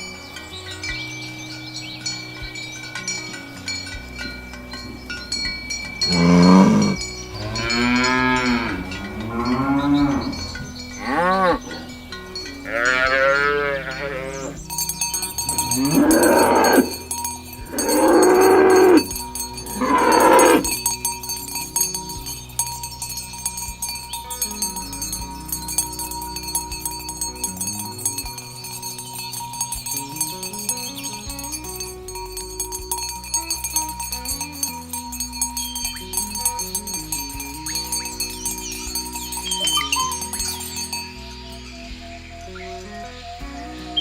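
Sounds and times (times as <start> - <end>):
bells ringing: 0.0 - 44.0
cattle mooing: 6.0 - 11.9, 12.7 - 14.6, 15.4 - 20.8.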